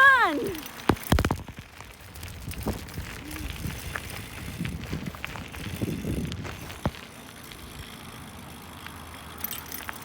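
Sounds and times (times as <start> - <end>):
bicycle rattling over rough ground: 0.0 - 10.0
scattered clicks and knocks: 0.7 - 1.9
wind on microphone: 1.1 - 7.0.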